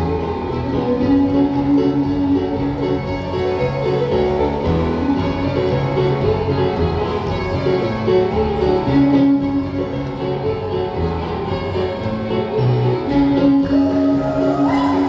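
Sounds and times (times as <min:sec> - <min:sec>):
live dance band playing: 0:13.1 - 0:15.0.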